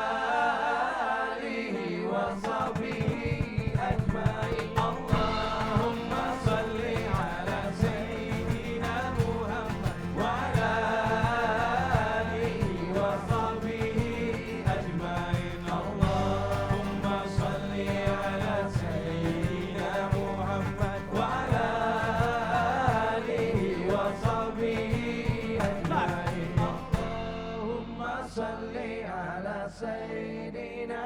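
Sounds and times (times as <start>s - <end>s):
chant-like singing: 0.0s - 31.0s
live band devotional song: 2.2s - 28.3s
hand percussion: 2.3s - 27.6s.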